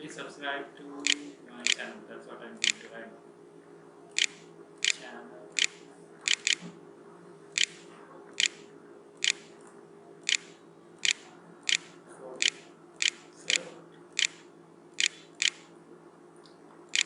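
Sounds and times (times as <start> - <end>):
faint steady hum: 0.0 - 17.0
mouse button clicking: 1.1 - 1.8, 4.2 - 5.0, 5.6 - 6.7, 7.6 - 8.6, 9.2 - 9.5, 10.3 - 13.6, 14.2 - 14.4, 15.0 - 15.7.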